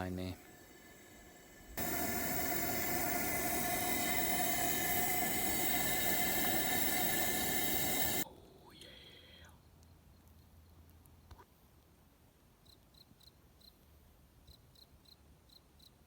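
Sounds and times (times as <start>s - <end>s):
whining tones: 0.0s - 8.2s
gas burner hissing: 0.0s - 8.3s.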